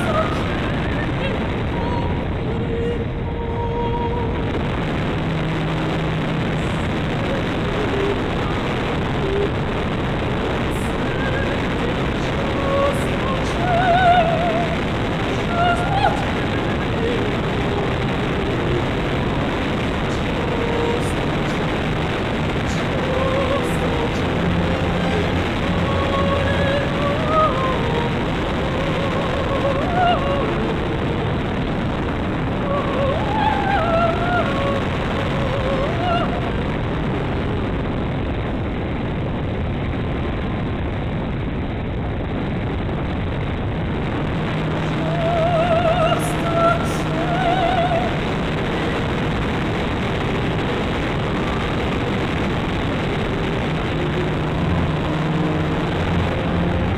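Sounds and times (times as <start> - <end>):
music with sung melody: 0.0 - 37.6
wind rush on microphone: 0.0 - 56.9.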